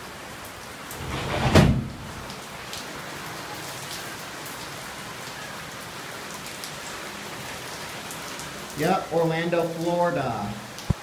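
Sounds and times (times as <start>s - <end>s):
heavy rain falling: 0.0s - 11.0s
loud thump: 1.0s - 2.3s.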